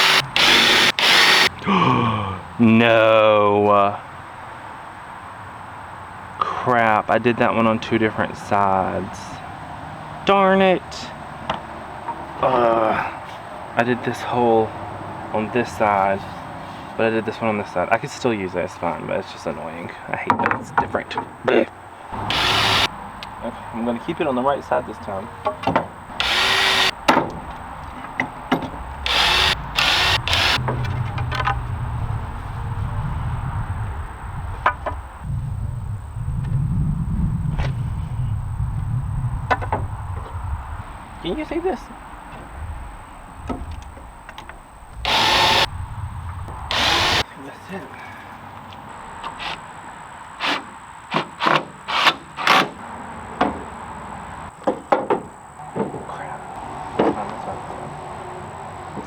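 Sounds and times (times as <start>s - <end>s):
power drill boring into wood: 0.0s - 1.5s, 22.2s - 22.9s, 26.1s - 27.0s, 29.0s - 30.6s, 45.0s - 45.7s, 46.7s - 47.2s
low steady hum: 26.0s - 47.2s.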